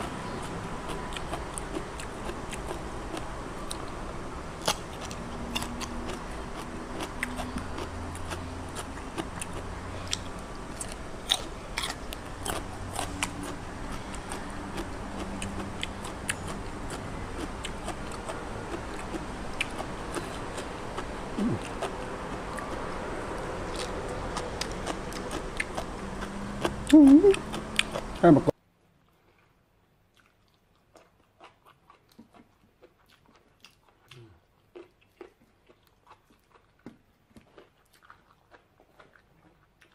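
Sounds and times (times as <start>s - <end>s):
person chewing and crunching: 0.0s - 29.5s, 30.1s - 39.9s
wet mouth sounds: 4.6s - 22.9s, 23.8s - 28.5s.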